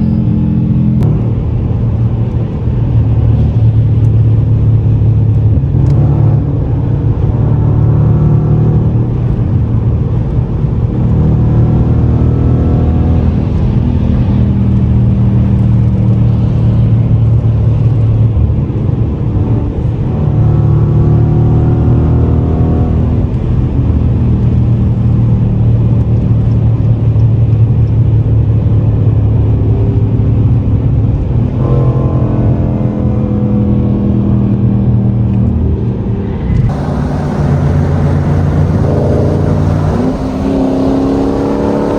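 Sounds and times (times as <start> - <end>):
car engine accelerating: 36.0 - 41.9.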